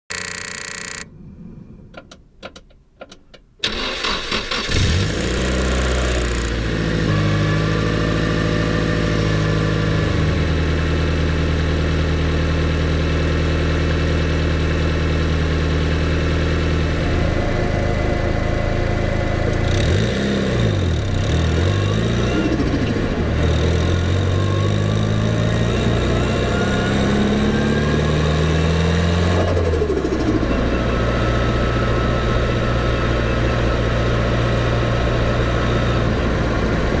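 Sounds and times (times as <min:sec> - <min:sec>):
car engine cranking and starting: 0:02.0 - 0:07.9, 0:16.3 - 0:33.8
car engine idling: 0:14.4 - 0:23.4.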